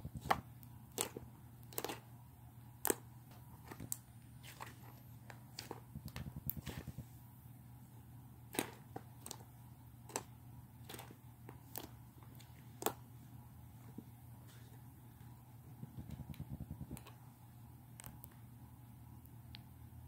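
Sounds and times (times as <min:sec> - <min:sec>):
slime squelching by hand: 0:00.0 - 0:07.2, 0:08.4 - 0:14.9.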